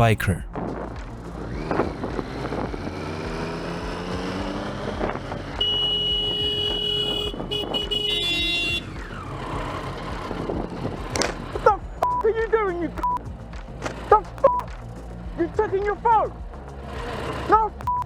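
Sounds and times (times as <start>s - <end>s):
motorcycle running: 1.5s - 7.4s
motorcycle horn: 5.6s - 8.9s.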